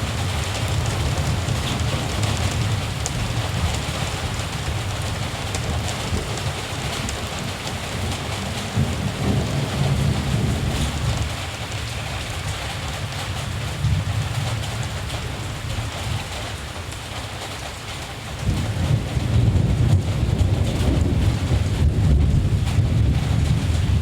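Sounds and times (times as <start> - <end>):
distant thunder rumbling: 0.0 - 16.3, 18.4 - 24.0
steady rain falling: 0.0 - 24.0.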